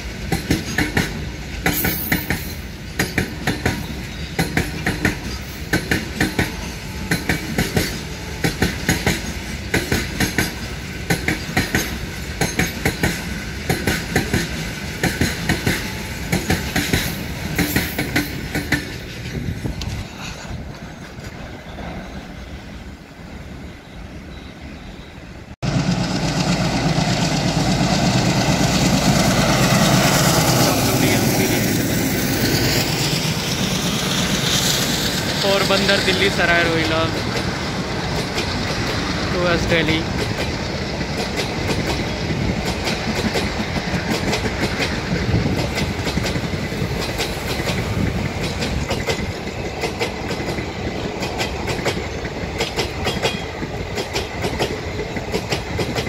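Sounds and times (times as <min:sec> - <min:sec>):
passenger train rumbling past: 0:00.0 - 0:56.0
freight train wheel clicks: 0:00.2 - 0:20.1, 0:33.6 - 0:56.0.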